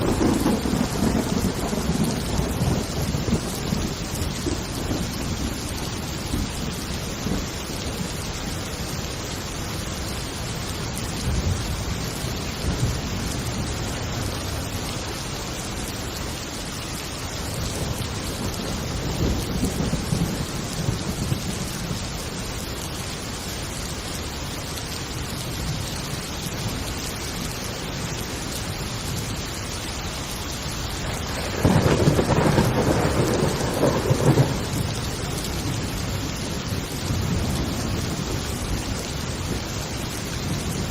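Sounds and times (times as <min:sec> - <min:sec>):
thunder rumbling: 0:00.0 - 0:08.3, 0:17.5 - 0:22.0, 0:31.0 - 0:40.9
heavy steady rain: 0:00.0 - 0:40.9.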